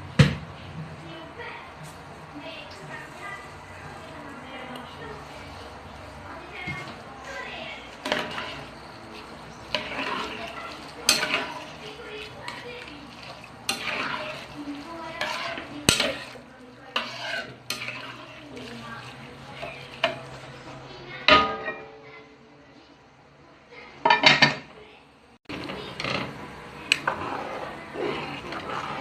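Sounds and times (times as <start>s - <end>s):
utensil clinking against metal pot: 6.5s - 20.4s.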